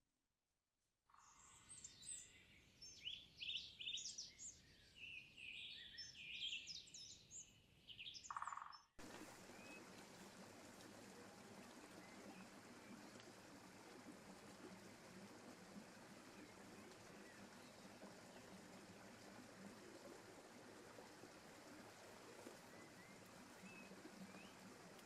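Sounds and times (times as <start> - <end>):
birds chirping and trilling: 1.3 - 8.8
steady hiss: 9.0 - 25.0.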